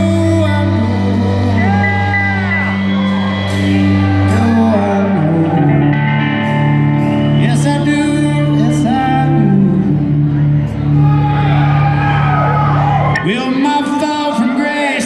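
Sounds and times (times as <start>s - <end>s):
lead vocals singing: 0.0s - 6.6s, 7.3s - 11.0s
rock band playing: 0.0s - 15.0s.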